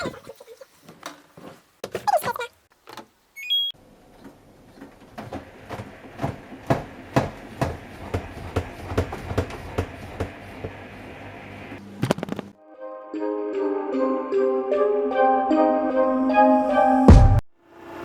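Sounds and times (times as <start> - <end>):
washing machine humming: 3.8 - 12.0.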